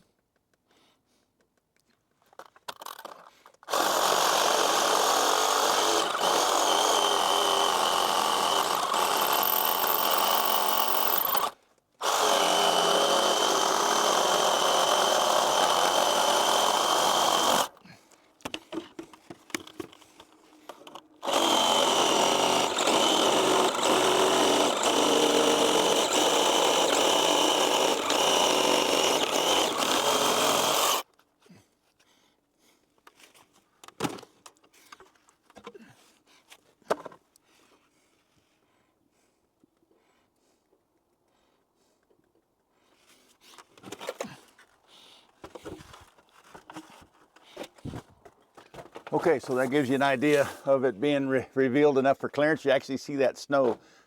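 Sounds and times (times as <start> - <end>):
power saw cutting wood: 3.7 - 17.8, 20.8 - 31.0, 49.1 - 50.7.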